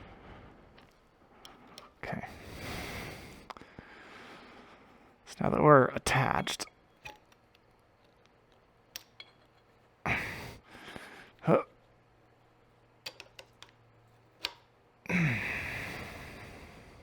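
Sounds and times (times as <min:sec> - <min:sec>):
breathy exhales: 0:15.1 - 0:17.0.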